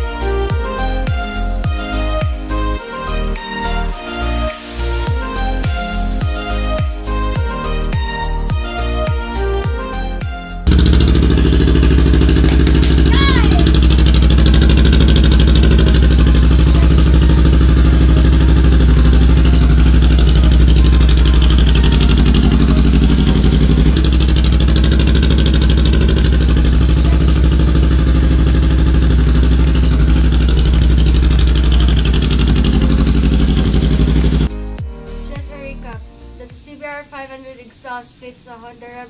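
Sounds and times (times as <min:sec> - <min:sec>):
motorcycle engine running: 0:10.6 - 0:34.6.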